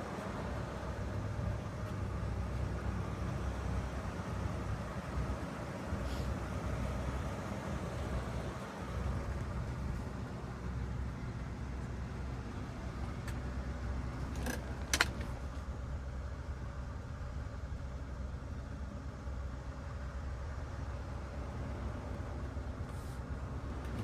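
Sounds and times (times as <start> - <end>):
car engine rumbling: 0.0 - 16.0, 20.3 - 24.0
short clicks or rattles: 14.1 - 15.6.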